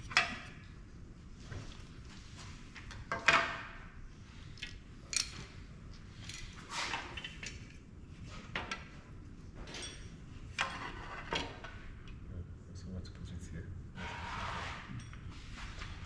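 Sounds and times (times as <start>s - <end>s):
small parts clinking on table: 5.1s - 5.5s, 6.2s - 6.6s.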